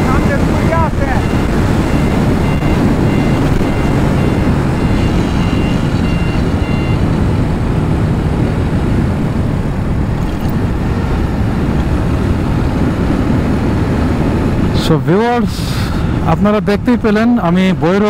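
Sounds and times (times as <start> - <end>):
motorcycle riding rumble: 0.0 - 18.0
electronic beeps: 1.2 - 7.1, 10.2 - 10.6.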